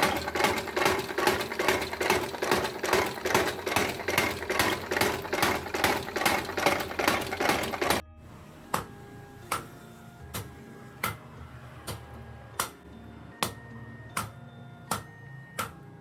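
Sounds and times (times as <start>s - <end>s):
hammer striking metal: 0.0s - 8.0s, 11.9s - 15.8s
hammer striking metal on anvil: 13.4s - 15.8s.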